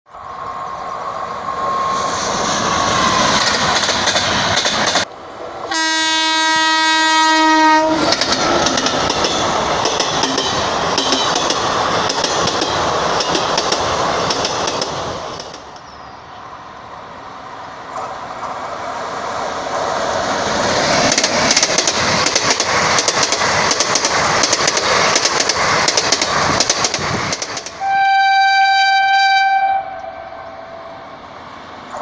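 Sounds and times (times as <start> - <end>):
train wheels rolling on rails: 0.1 - 28.2
train horn blast: 5.7 - 8.2, 27.8 - 31.0.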